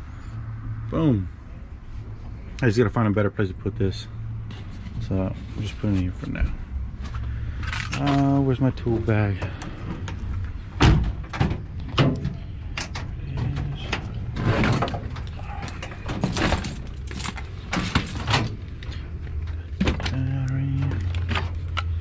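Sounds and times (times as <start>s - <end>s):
tools knocking and clunking: 10.0s - 20.2s.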